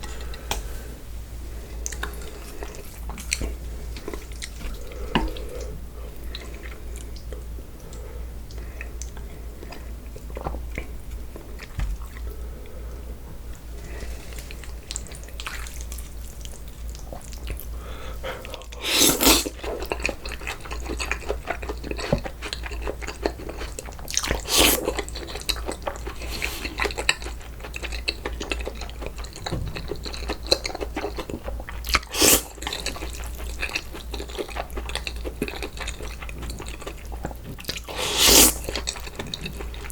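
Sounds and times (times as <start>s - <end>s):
wet chewing and crunching: 1.8s - 7.5s, 14.4s - 17.8s, 18.4s - 39.9s
slurping noodles: 18.7s - 19.6s, 24.2s - 25.1s, 26.0s - 27.0s, 31.9s - 32.6s, 37.8s - 38.8s.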